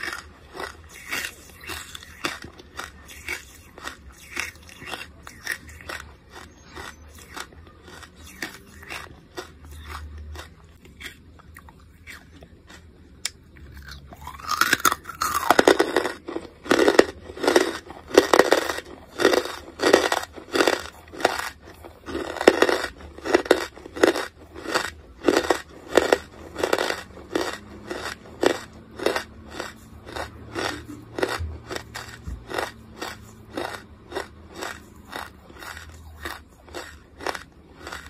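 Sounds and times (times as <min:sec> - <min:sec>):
crisp chewing crunches: 0:00.0 - 0:38.0.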